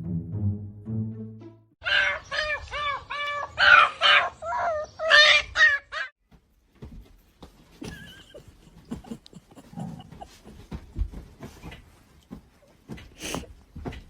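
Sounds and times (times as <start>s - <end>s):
music: 0.0s - 1.8s.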